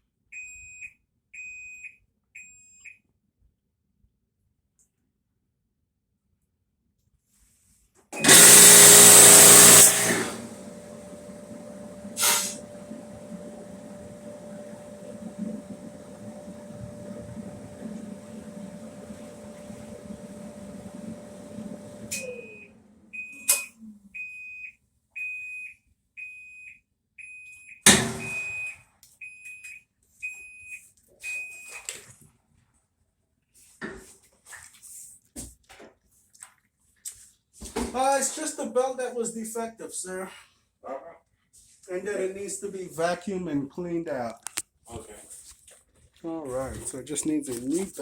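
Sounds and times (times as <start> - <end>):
electric dryer humming: 8.2 - 23.6, 27.9 - 28.6
high beep: 22.1 - 31.8.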